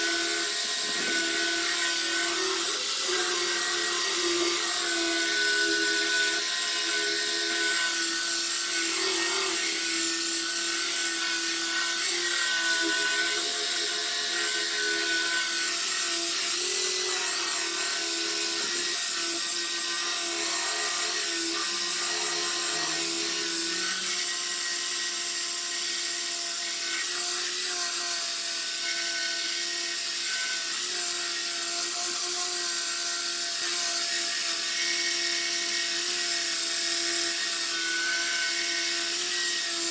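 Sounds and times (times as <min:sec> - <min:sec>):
power sander running: 0:00.0 - 0:39.9.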